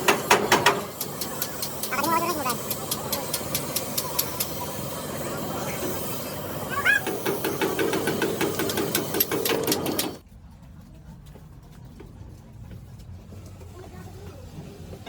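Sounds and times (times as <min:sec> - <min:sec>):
small machine fast ticking: 0:00.0 - 0:05.6, 0:06.8 - 0:10.2.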